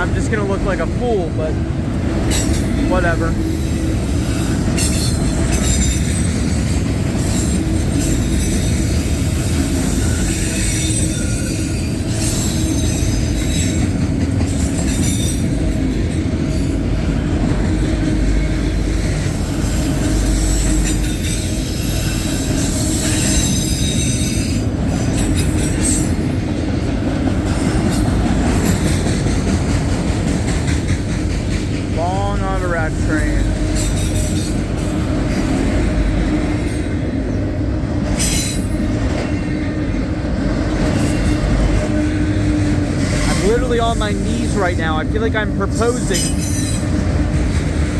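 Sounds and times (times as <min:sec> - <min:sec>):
freight train wheels rumbling: 0:00.0 - 0:47.9
high wheel squeal: 0:07.2 - 0:13.9.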